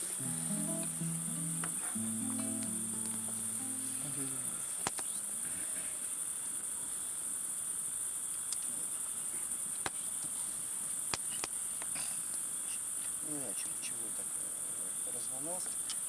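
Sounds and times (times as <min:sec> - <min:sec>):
faint low notes: 0:00.0 - 0:04.6
crickets chirping: 0:00.0 - 0:09.7.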